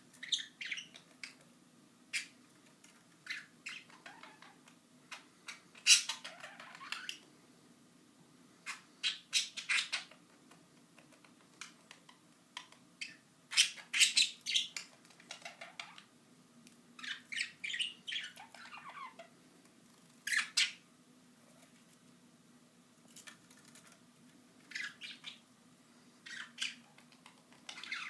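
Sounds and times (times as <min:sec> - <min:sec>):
budgerigars chirping and squawking: 0:00.2 - 0:01.4, 0:03.2 - 0:07.2, 0:08.6 - 0:10.2, 0:12.6 - 0:16.1, 0:17.0 - 0:19.3, 0:20.3 - 0:20.8, 0:24.6 - 0:25.4, 0:26.2 - 0:28.0.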